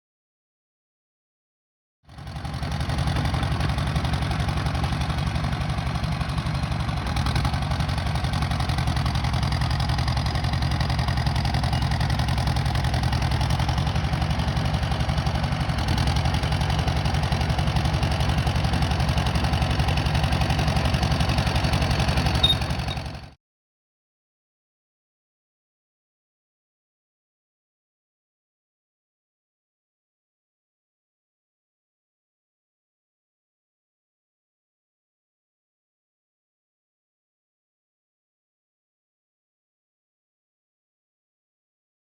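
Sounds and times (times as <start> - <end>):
bulldozer diesel engine running: 2.1 - 23.4.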